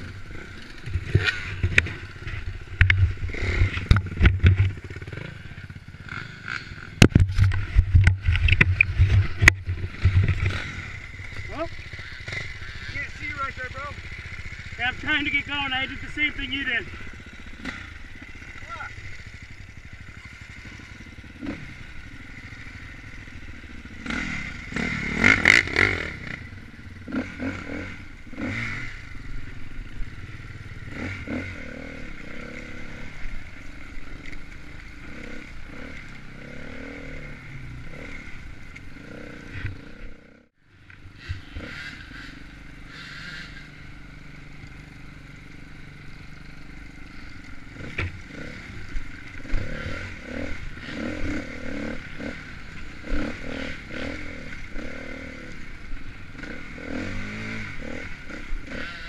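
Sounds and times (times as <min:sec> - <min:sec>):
dirt bike engine revving: 0:00.0 - 0:59.0
bike clattering and scraping: 0:00.3 - 0:12.5.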